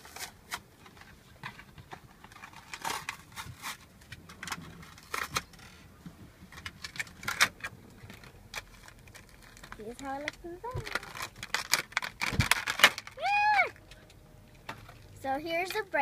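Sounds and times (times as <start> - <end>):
packaging crinkling and rustling: 0.0 - 5.9, 6.5 - 13.9.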